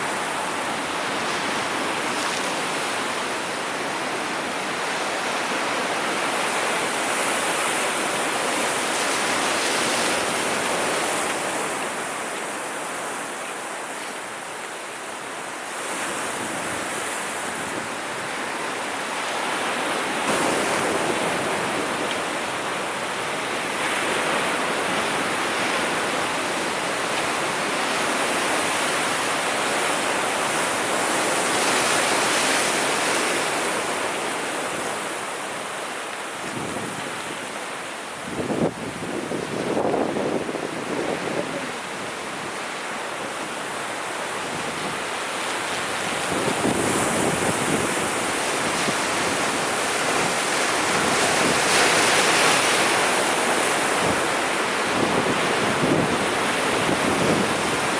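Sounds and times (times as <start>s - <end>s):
sea waves breaking: 0.0s - 57.9s.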